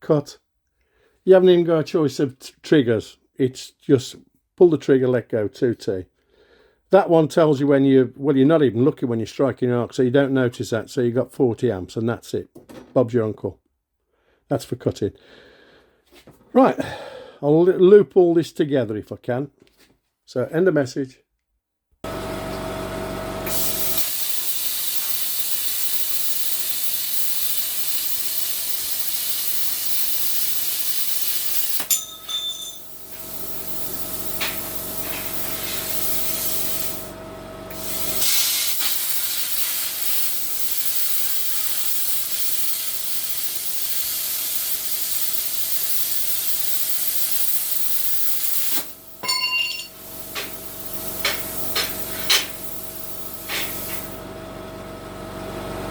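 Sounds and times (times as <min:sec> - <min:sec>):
torch trigger clicks: 0:23.5 - 0:32.0, 0:32.8 - 0:37.1, 0:37.7 - 0:49.2, 0:50.0 - 0:54.2
plasma cutter hissing: 0:23.5 - 0:37.1, 0:37.7 - 0:54.2.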